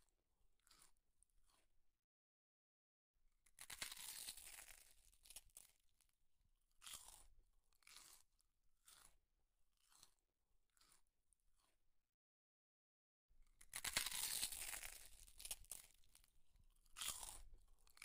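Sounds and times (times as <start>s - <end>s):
close-up chewing: 6.8s - 8.3s, 9.8s - 11.8s, 13.6s - 18.0s.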